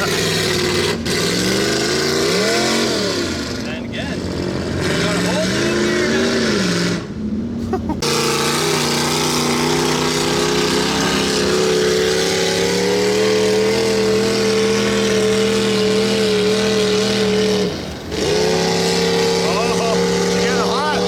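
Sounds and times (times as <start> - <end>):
truck engine revving high: 0.0 - 21.0.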